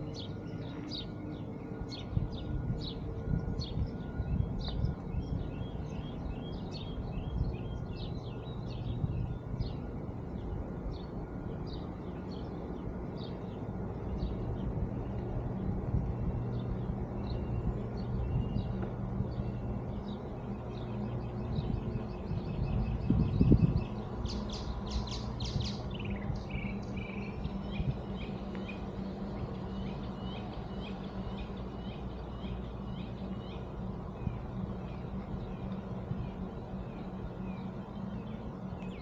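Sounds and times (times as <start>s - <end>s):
steady low rumble: 0.0s - 39.0s
small birds chirping: 16.1s - 39.0s.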